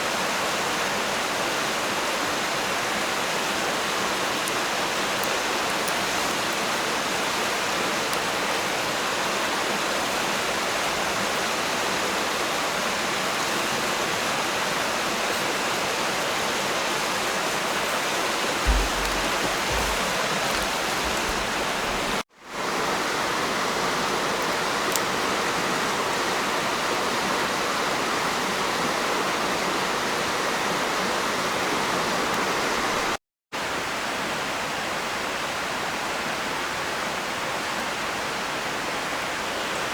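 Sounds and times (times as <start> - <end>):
rushing water noise: 0.0 - 34.2
low thump: 18.7 - 22.2.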